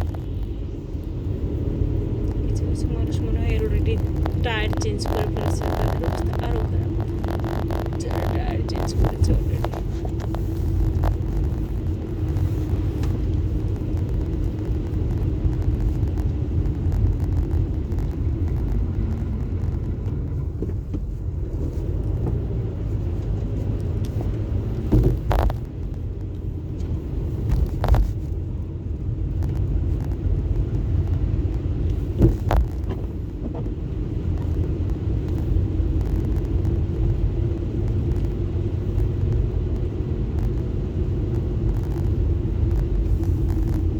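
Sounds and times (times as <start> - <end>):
car road and engine rumble: 0.0 - 43.9.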